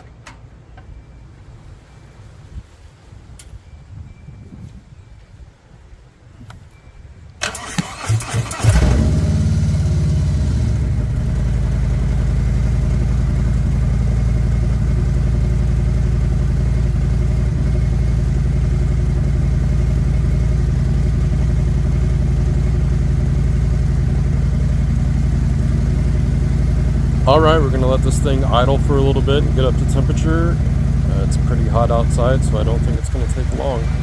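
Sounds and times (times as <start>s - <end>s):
starter motor cranking: 7.4s - 10.0s
motorcycle engine idling: 8.6s - 34.0s.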